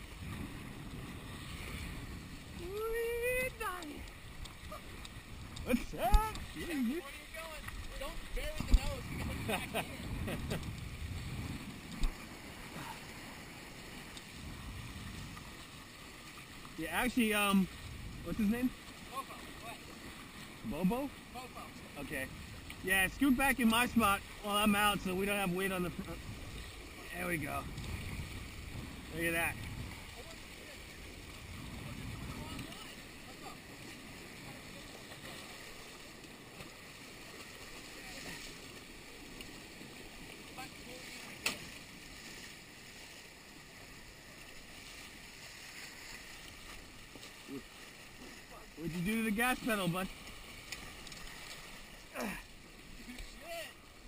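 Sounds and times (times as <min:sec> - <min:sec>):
wind buffeting microphone: 0:00.0 - 0:07.0, 0:07.8 - 0:12.5, 0:26.0 - 0:30.4, 0:31.0 - 0:33.0
water noise: 0:00.0 - 0:54.0.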